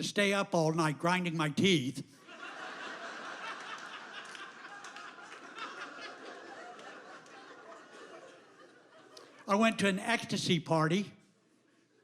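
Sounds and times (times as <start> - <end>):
audience laughing: 2.2 - 9.8.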